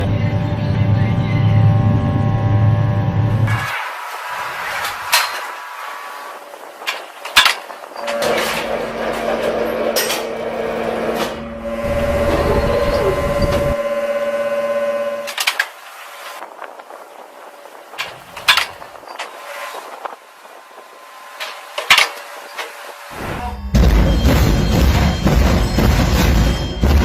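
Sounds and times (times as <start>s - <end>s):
machinery humming: 0.0s - 27.0s
metallic clanks and clicks: 4.6s - 5.6s, 6.8s - 11.5s, 18.0s - 19.8s, 21.4s - 22.8s.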